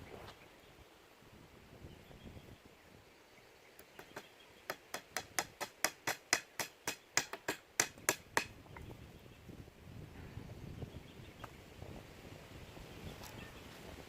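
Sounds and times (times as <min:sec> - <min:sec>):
tool striking wood: 0:04.0 - 0:08.5.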